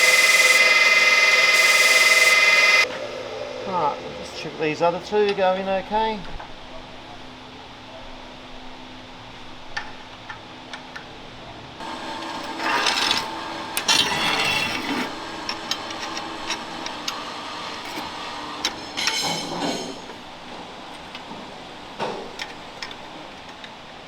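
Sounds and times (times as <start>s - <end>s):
metal scraping: 11.9s - 23.1s.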